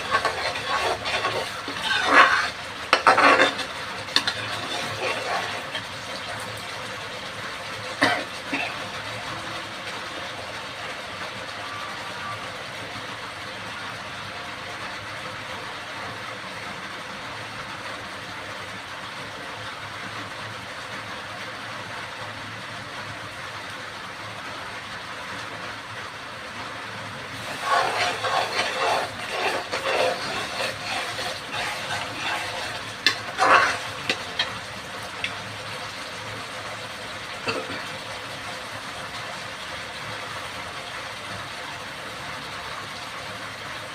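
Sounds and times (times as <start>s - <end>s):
spoon scraping in a pan: 0.0s - 6.4s, 27.4s - 35.8s
food sizzling in a pan: 0.0s - 13.6s, 27.3s - 43.9s.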